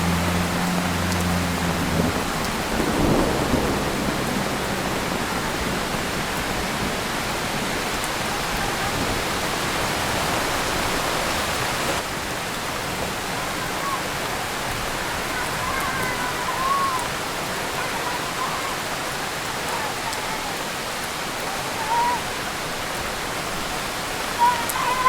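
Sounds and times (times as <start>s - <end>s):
low rumble of thunder: 0.0s - 9.3s
heavy rain pouring: 0.0s - 25.0s.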